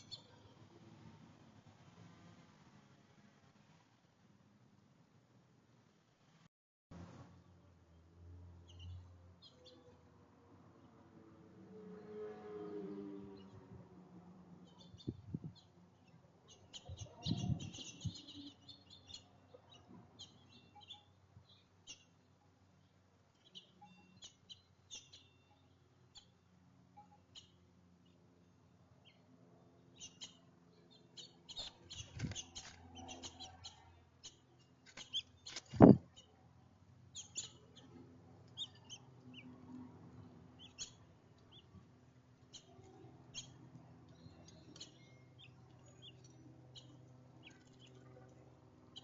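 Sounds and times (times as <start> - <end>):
small songbirds chirping: 0.0 - 0.6, 8.6 - 10.0, 14.6 - 28.3, 28.9 - 36.4, 37.0 - 49.0.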